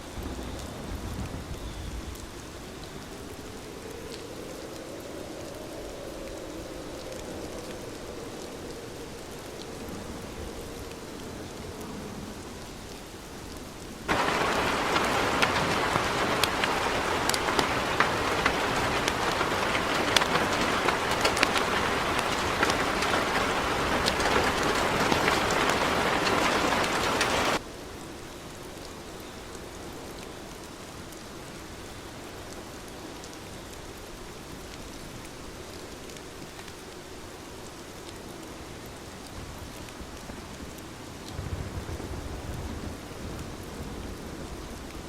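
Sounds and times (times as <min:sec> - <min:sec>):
heavy rain hissing: 0:00.0 - 0:27.7, 0:38.3 - 0:45.0
sharp raindrop impacts: 0:14.1 - 0:27.6.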